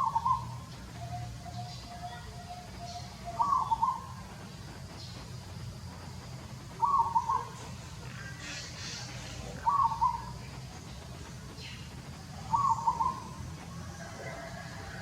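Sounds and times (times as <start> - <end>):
bird calling: 0.0 - 4.3, 6.7 - 10.4, 11.5 - 13.4.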